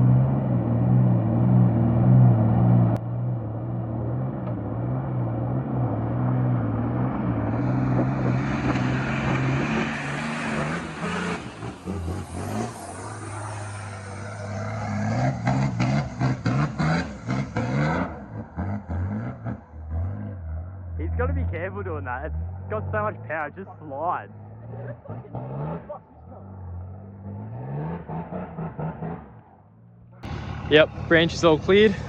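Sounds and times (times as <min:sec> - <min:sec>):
vehicle engine running: 0:00.0 - 0:32.0
tyres spinning on snow: 0:04.8 - 0:21.1
rapid fluttering pulse: 0:10.8 - 0:15.4.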